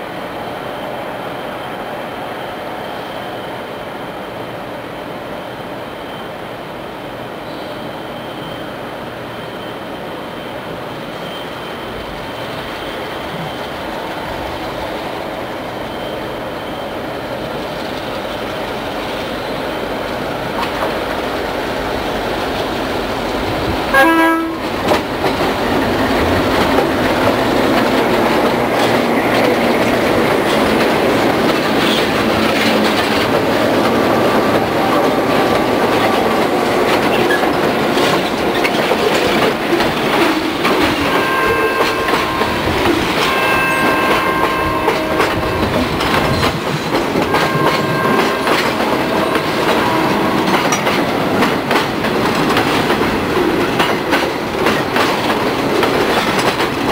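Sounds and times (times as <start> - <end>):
freight train rumbling past: 0.0 - 56.9
high wheel squeal: 7.4 - 14.6, 15.5 - 17.6
train horn blast: 23.9 - 24.8, 41.1 - 45.9, 47.2 - 50.6.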